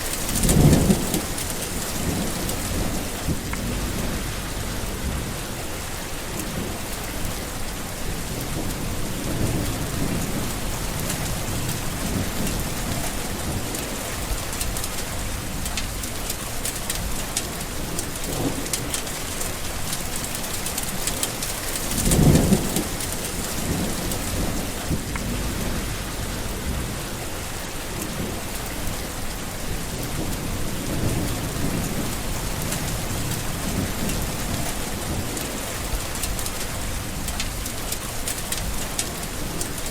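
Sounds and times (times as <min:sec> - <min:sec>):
thunderclap: 0:00.0 - 0:07.5, 0:20.2 - 0:29.0, 0:29.7 - 0:37.7
rolling thunder: 0:00.0 - 0:16.3, 0:20.0 - 0:37.7
steady rain: 0:00.0 - 0:39.9.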